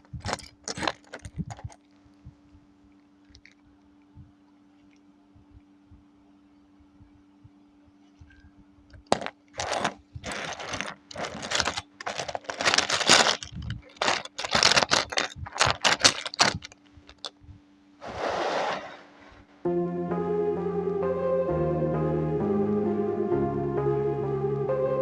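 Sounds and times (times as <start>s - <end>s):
plastic toy bricks rattling: 0.0s - 1.8s, 9.1s - 17.4s
low electrical hum: 0.0s - 18.1s.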